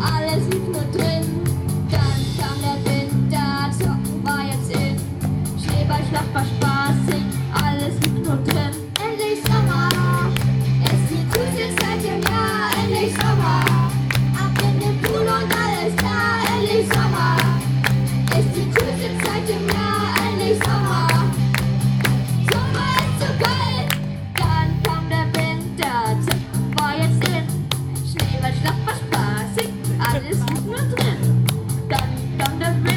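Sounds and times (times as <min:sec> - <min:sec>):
bass: 0:00.0 - 0:32.9
drum beat: 0:09.5 - 0:24.9, 0:26.2 - 0:32.9
children singing: 0:10.9 - 0:17.7, 0:18.3 - 0:21.4.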